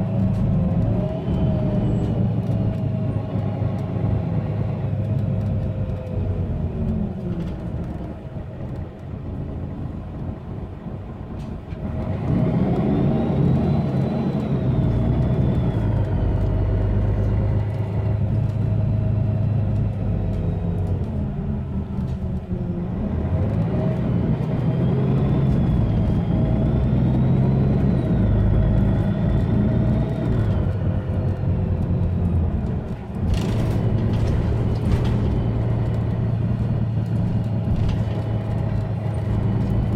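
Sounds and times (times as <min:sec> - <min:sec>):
bus diesel engine under load: 0:00.0 - 0:39.9
short clatter: 0:32.5 - 0:39.9.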